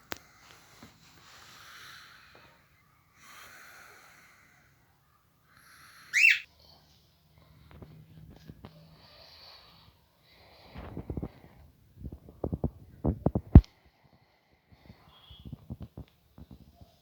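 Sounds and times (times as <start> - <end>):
bird raspy hissing: 5.5 - 6.5
bird sharp call: 6.1 - 6.5.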